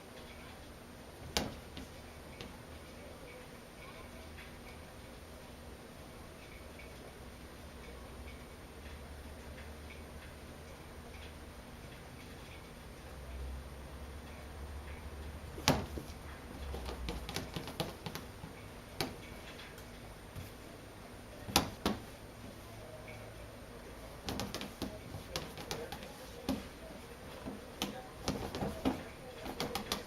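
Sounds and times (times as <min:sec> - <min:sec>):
small clicks and taps: 0:14.2 - 0:20.6, 0:24.2 - 0:30.0
light taps and knocks: 0:15.5 - 0:19.6, 0:24.2 - 0:30.0.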